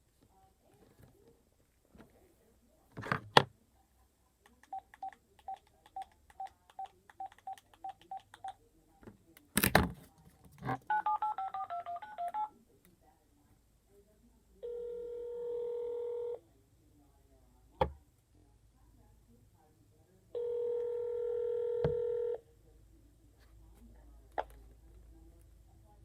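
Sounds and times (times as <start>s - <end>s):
touch-tone dialing beeps: 10.9s - 12.5s.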